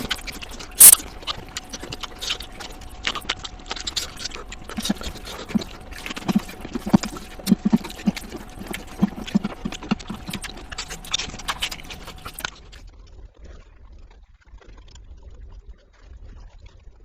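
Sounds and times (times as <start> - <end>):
person chewing and smacking: 0.0 - 12.8.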